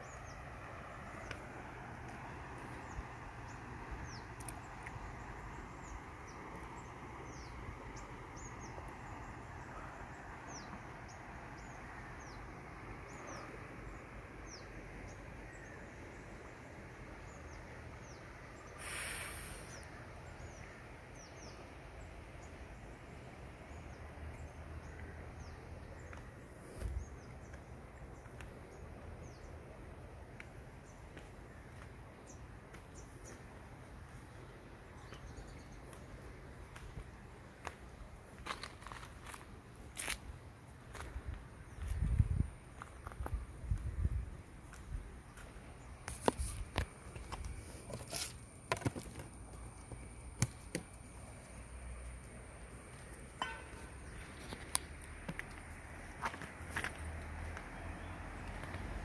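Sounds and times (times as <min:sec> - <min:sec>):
birds chirping: 0:00.0 - 0:39.6
steady background hiss: 0:00.0 - 0:59.0.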